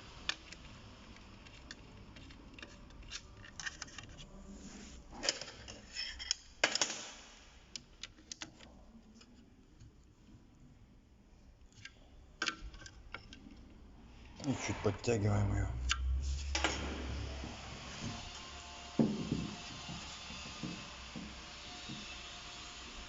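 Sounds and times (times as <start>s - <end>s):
plastic clacks: 0.2s - 4.2s
plastic cover clicks and scrapes: 0.2s - 4.3s.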